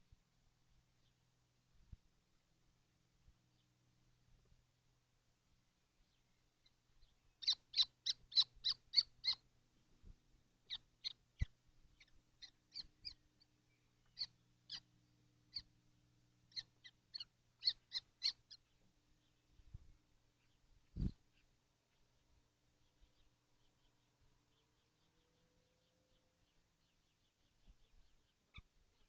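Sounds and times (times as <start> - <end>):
faint steady hum: 0.0 - 29.0
kestrels calling: 6.6 - 9.5, 10.6 - 15.8, 16.4 - 19.5, 20.3 - 22.1, 22.8 - 29.0.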